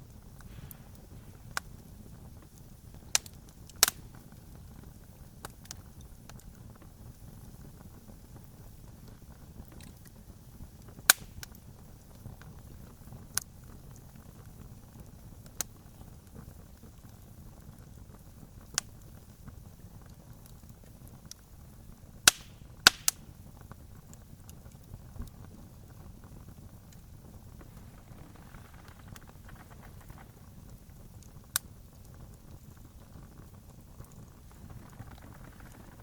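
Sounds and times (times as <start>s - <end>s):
campfire flames rumbling: 0.0s - 36.0s
wood pops: 22.3s - 23.2s, 27.5s - 30.7s.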